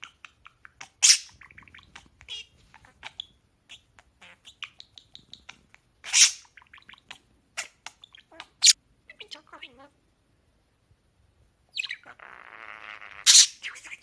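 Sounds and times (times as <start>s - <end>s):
parakeets chattering: 0.0s - 9.9s, 11.8s - 14.0s
loud sharp bird calls: 13.1s - 14.0s.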